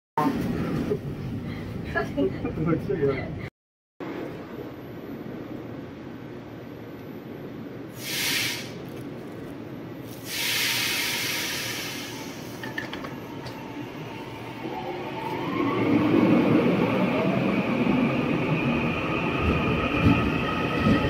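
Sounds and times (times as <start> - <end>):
train rumble: 4.0 - 21.0
air brake hiss: 8.0 - 8.8, 10.2 - 12.5.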